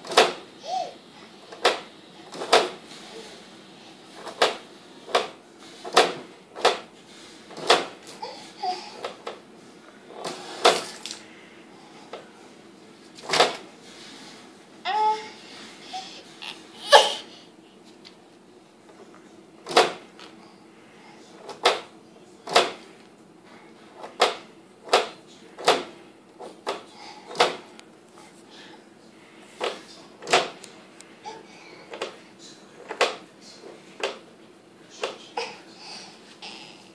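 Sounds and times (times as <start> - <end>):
refrigerator door thudding: 0.0 - 0.4, 19.6 - 20.1.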